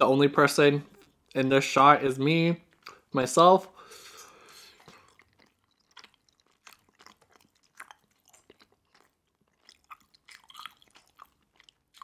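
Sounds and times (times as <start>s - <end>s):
chewing with wet mouth clicks: 0.9s - 1.4s, 2.7s - 3.1s, 4.1s - 12.0s.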